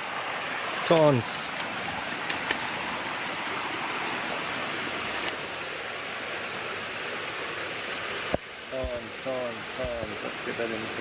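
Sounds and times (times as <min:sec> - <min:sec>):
river flowing over rocks: 0:00.0 - 0:11.0
faint high whine: 0:02.7 - 0:11.0.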